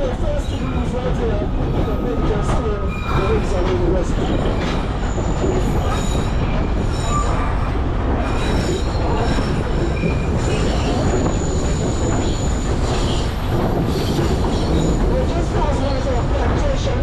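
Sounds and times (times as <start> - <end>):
train carriage rumble: 0.0 - 17.0
high wheel squeal: 2.0 - 3.6, 4.6 - 15.1.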